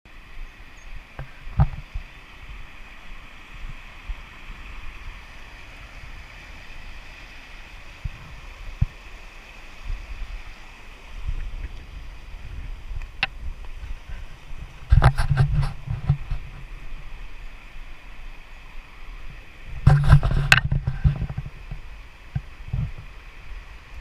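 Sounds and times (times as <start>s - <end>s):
creek water running: 0.1s - 24.0s
wind rumble on microphone: 0.4s - 24.0s.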